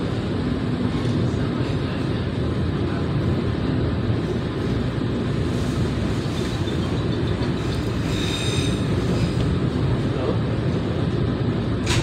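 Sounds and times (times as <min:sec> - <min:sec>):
train coach rumbling on rails: 0:00.0 - 0:12.0
high wheel squeal: 0:06.2 - 0:09.0.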